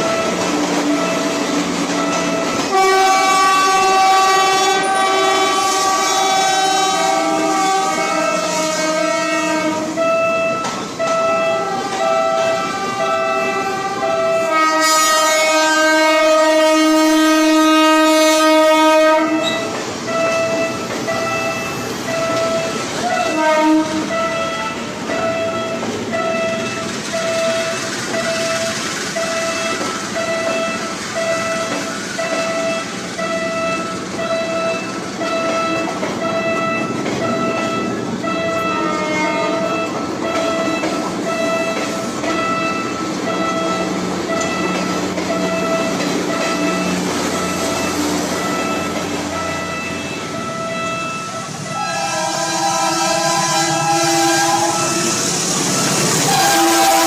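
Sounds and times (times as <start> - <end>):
train horn blast: 0.0 - 25.8, 32.2 - 57.0
railroad crossing bell ringing: 0.0 - 57.0
train wheels rumbling on rail: 0.0 - 57.0.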